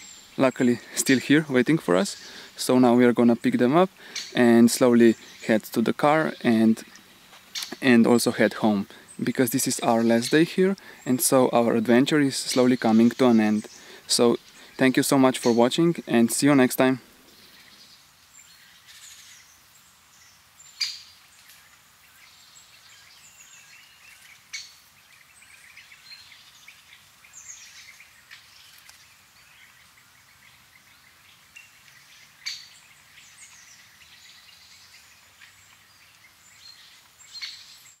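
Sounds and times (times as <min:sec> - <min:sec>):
birds chirping: 0:00.0 - 0:38.0
faint steady hiss: 0:00.0 - 0:38.0.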